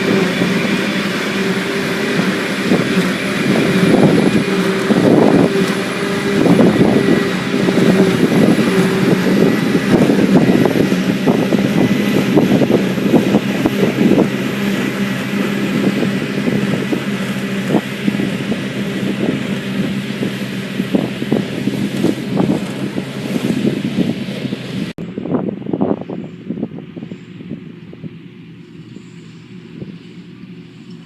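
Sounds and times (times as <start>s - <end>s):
diesel farm machinery running: 0.0s - 31.0s.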